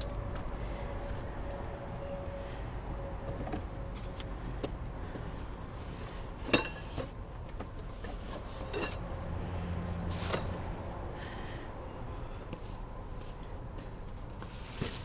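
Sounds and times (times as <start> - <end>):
steady low rumble: 0.0 - 14.6
items clinking in a dumpster: 6.4 - 9.0.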